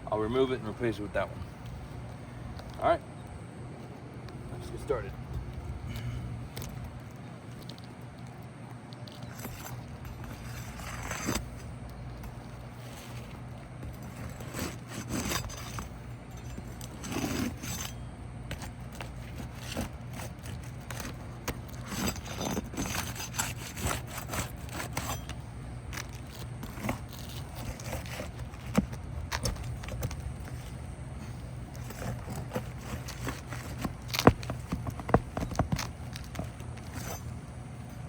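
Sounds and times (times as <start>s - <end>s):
nails pried from shingles: 9.1s - 37.4s.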